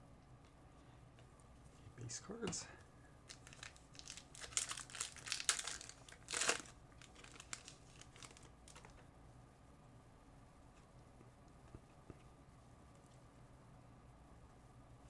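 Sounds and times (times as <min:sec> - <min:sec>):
card pack wrapper crinkling: 0:03.3 - 0:09.0.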